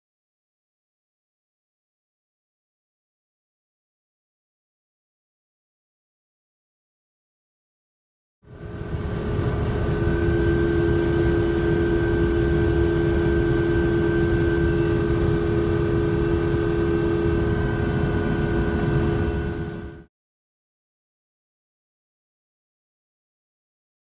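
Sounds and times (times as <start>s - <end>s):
low road rumble: 8.5s - 20.0s
differential whining: 8.5s - 20.1s.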